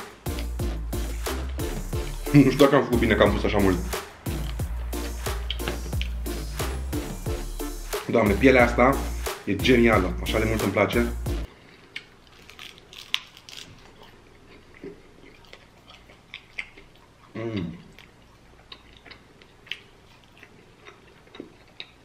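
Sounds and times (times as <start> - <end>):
chewing with wet clicks: 11.7 - 22.0.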